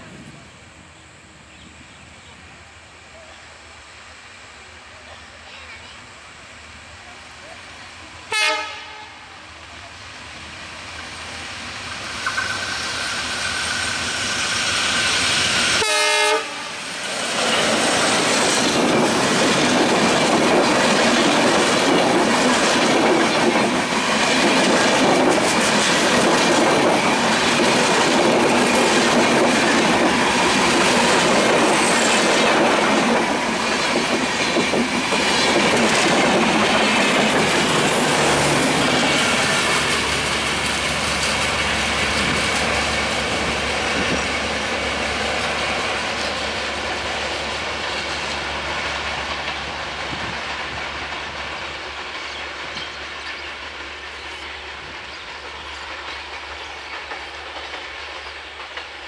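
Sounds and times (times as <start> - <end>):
train horn blast: 8.3 - 9.4, 15.8 - 16.8
train wheels rumbling and clacking: 9.6 - 59.0.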